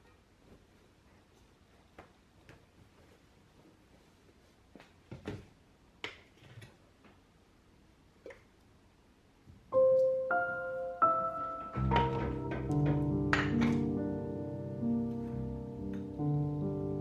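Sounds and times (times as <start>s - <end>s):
piano-like background music: 9.7s - 17.0s
soft clicks and knocks: 11.6s - 14.4s.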